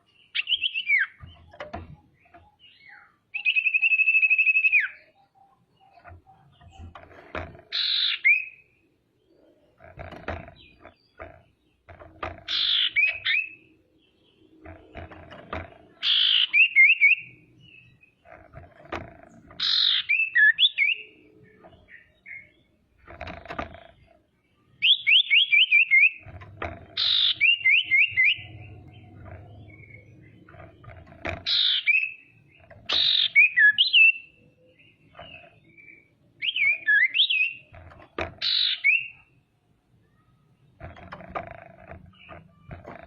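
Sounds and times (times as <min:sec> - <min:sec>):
bird calling with scratchy chirps: 0:00.0 - 0:39.3
soft scratchy noises: 0:09.2 - 0:13.6, 0:17.4 - 0:20.1, 0:26.2 - 0:31.8, 0:40.6 - 0:43.0.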